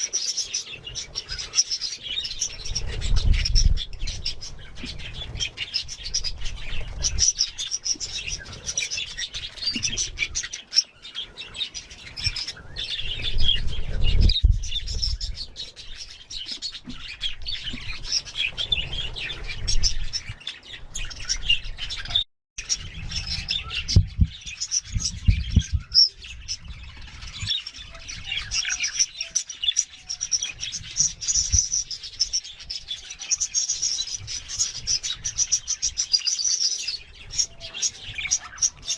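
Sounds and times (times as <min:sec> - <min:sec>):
budgerigars chirping: 0:14.7 - 0:38.9.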